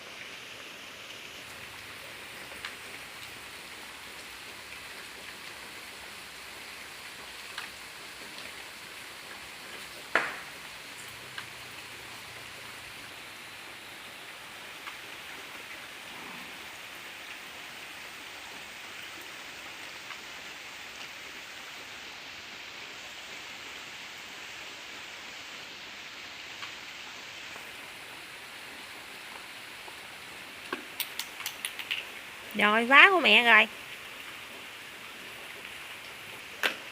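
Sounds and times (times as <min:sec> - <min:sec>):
steady rain: 0:00.0 - 0:36.9
water drips: 0:01.1 - 0:16.0, 0:29.0 - 0:36.9.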